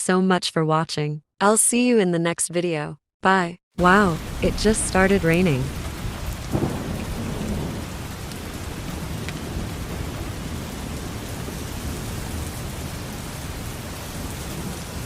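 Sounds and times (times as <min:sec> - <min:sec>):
steady rain falling: 0:03.8 - 0:15.0.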